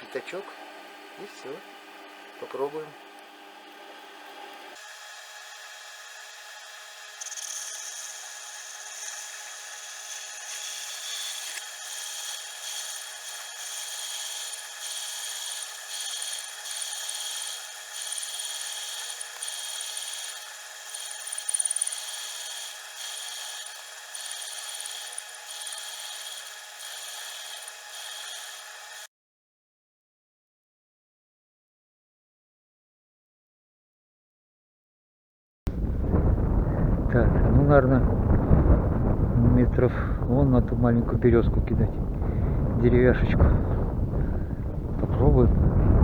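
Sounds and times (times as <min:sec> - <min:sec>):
file rasping on metal: 0:05.2 - 0:29.1.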